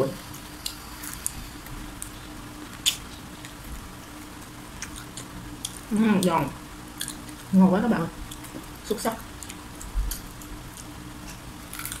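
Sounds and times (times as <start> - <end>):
crunchy fried chicken chewing: 0.6 - 5.9, 6.9 - 7.5, 9.3 - 12.0.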